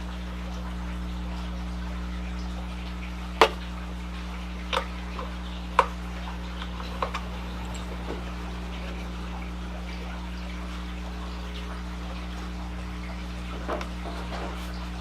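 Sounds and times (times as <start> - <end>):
steady low hum: 0.0 - 15.0
metal tools clinking: 7.0 - 8.3.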